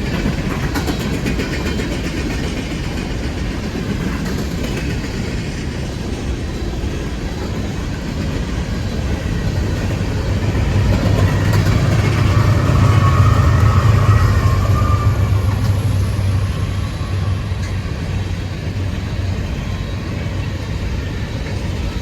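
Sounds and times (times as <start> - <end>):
freight train cars rumbling over rails: 0.0 - 22.0
locomotive engine drone: 5.3 - 22.0.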